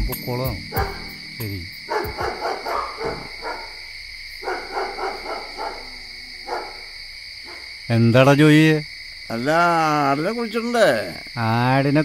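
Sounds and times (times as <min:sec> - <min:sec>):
night insects chirring: 0:00.0 - 0:12.0
dog barking: 0:00.7 - 0:01.1, 0:01.9 - 0:03.8, 0:04.4 - 0:07.7.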